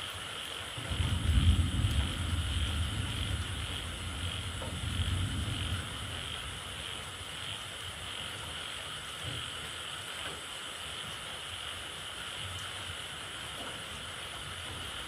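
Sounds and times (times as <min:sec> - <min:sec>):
low rumble: 0:00.9 - 0:07.3
frogs calling: 0:00.9 - 0:09.0.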